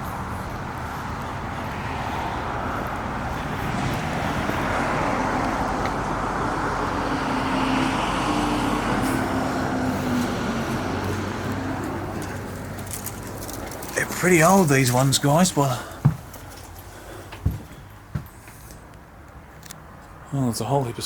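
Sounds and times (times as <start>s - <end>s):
vehicle passing by: 0.0s - 16.0s.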